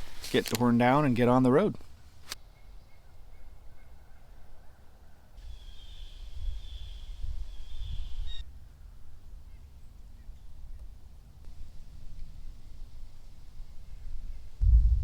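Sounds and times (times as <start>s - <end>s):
low rumble: 14.6s - 15.0s.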